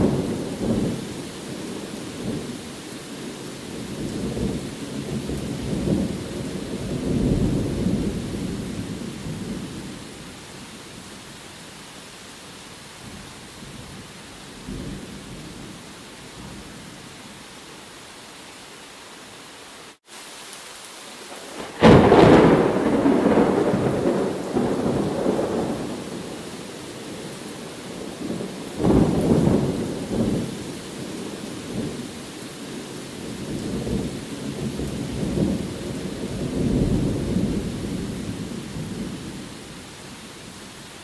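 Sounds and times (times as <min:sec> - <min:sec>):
steady rain: 0:00.0 - 0:41.0
thunder clap and rumbles: 0:21.5 - 0:26.4, 0:33.4 - 0:39.4.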